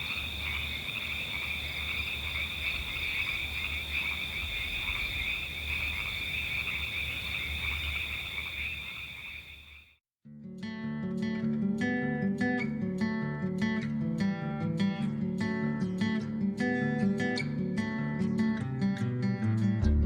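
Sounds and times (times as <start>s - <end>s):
frogs trilling: 0.0s - 10.0s
acoustic guitar music: 10.3s - 20.0s.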